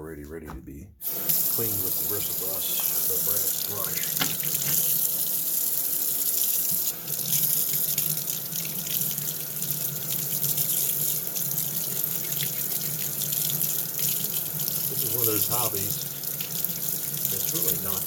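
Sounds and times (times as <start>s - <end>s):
tap water running into sink: 1.0s - 18.0s.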